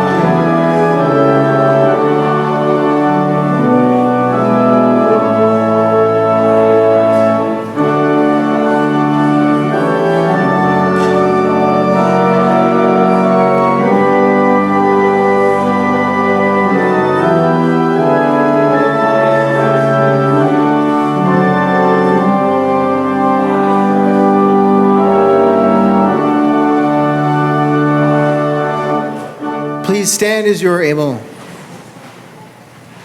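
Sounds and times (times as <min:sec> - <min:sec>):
organ playing sustained chords: 0:00.0 - 0:31.2.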